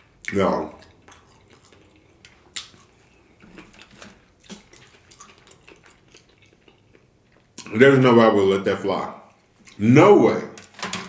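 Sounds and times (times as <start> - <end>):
wet chewing mouth sounds: 0.1 - 7.8.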